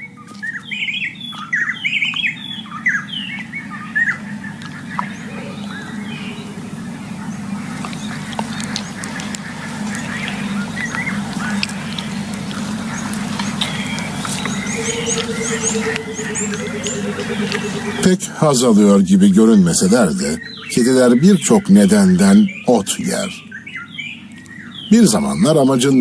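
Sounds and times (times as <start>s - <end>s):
birds chirping and squawking: 0.0s - 26.0s
steady low hum: 0.0s - 26.0s.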